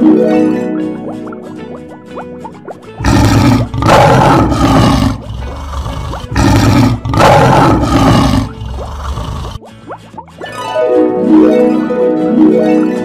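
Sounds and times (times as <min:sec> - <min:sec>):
lion roaring: 0:03.0 - 0:09.6.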